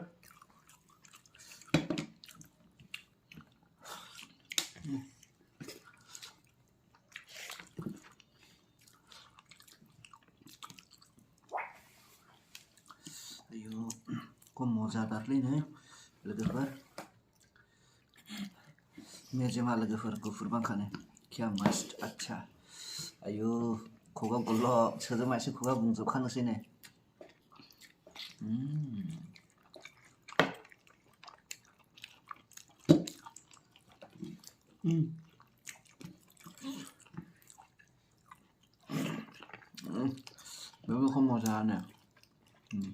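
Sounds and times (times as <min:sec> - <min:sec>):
person chewing meat: 0:00.1 - 0:14.6, 0:17.1 - 0:18.9, 0:26.7 - 0:42.9
person humming: 0:28.4 - 0:29.2.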